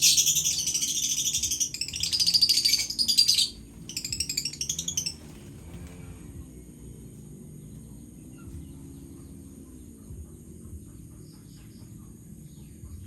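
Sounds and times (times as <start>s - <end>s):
parrots chirping: 0.0s - 5.4s.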